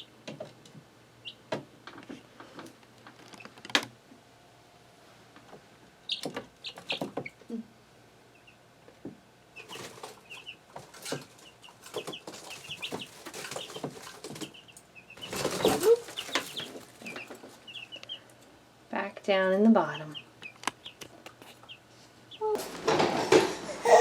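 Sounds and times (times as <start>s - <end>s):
chicks peeping: 0.0s - 0.6s, 1.2s - 2.3s, 6.0s - 18.7s, 19.8s - 24.0s
scratching and rustling: 1.9s - 3.9s, 9.6s - 14.6s, 15.2s - 17.8s
wings flapping: 15.2s - 17.1s.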